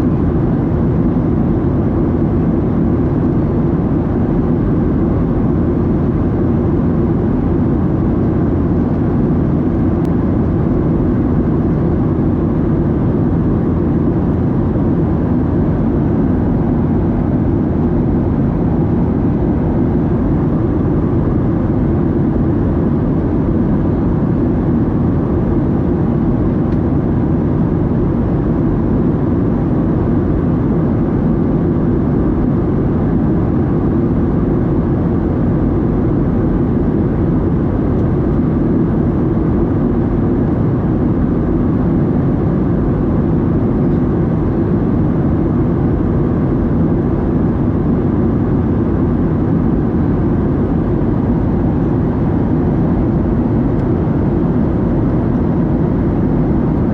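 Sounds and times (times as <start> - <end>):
jet engine drone in cabin: 0.0 - 56.9.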